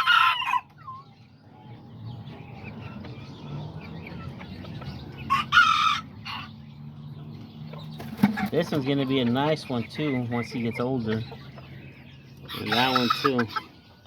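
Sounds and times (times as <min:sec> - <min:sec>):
roosters crowing: 0:00.0 - 0:01.2, 0:04.0 - 0:06.8, 0:08.2 - 0:14.0
hens clucking softly: 0:07.3 - 0:14.0.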